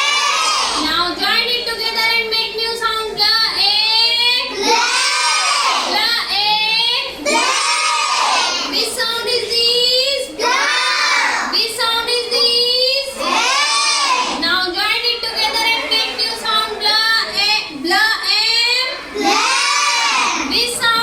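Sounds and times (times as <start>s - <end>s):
children chanting in chorus: 0.0s - 0.9s, 4.6s - 6.0s, 7.2s - 9.0s, 10.4s - 11.6s, 13.2s - 14.4s, 18.9s - 20.5s.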